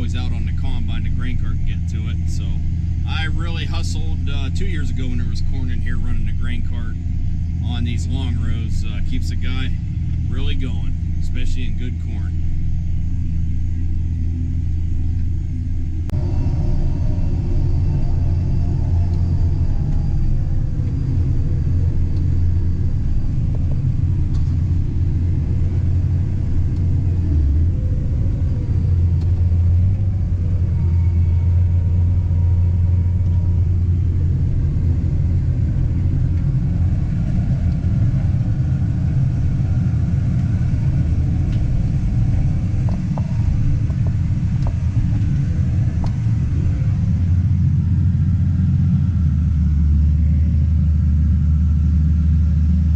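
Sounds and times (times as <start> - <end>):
tractor engine droning: 0.0 - 52.9.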